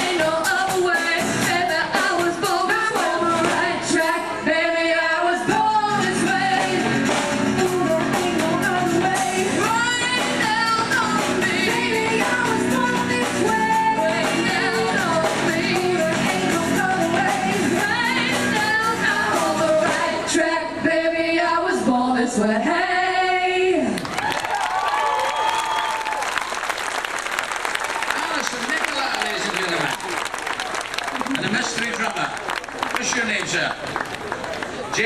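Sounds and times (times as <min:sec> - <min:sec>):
drum kit: 0:00.0 - 0:04.0, 0:05.5 - 0:20.1
women singing together: 0:00.0 - 0:24.0.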